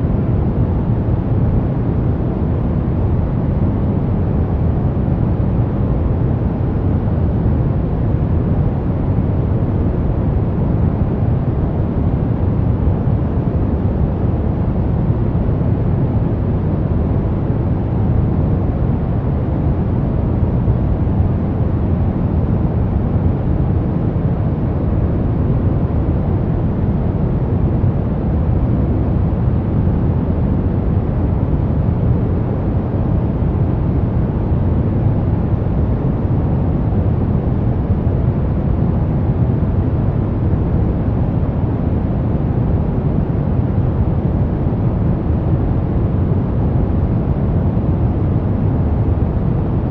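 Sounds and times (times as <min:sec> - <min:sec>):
brown noise rumbling hiss: 0:00.0 - 0:49.9.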